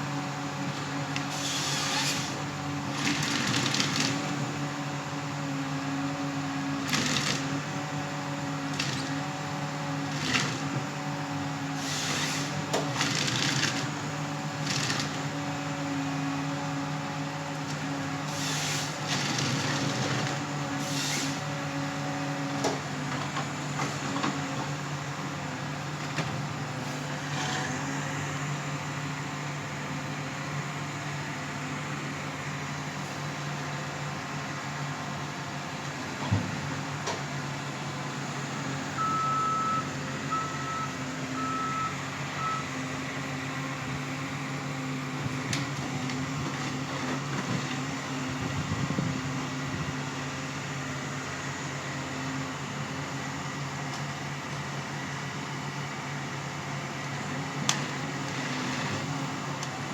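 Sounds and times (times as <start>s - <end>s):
diesel engine running: 0.0s - 59.9s
reversing alarm beeping: 39.0s - 42.8s.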